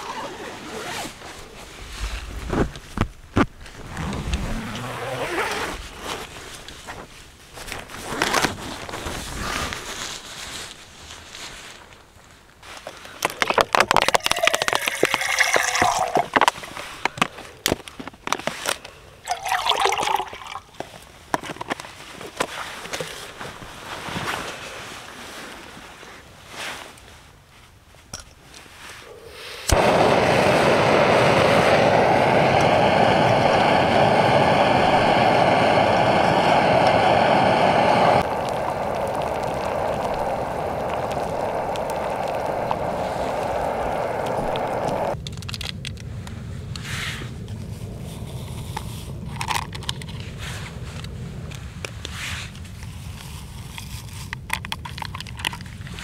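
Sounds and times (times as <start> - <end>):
gas burner hissing: 29.5 - 45.2.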